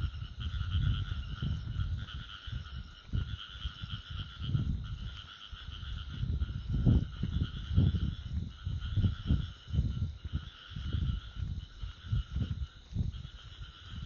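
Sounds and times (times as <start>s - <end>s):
insects calling: 0.0s - 14.0s.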